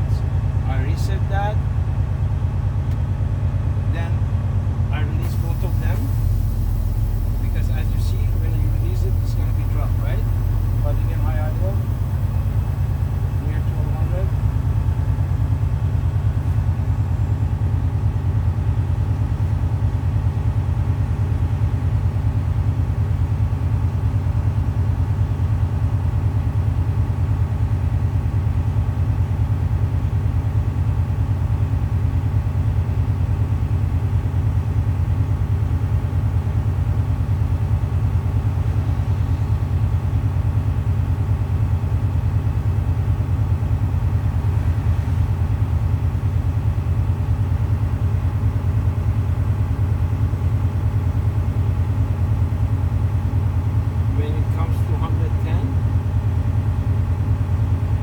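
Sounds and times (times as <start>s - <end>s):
diesel engine high idle: 0.0s - 58.0s.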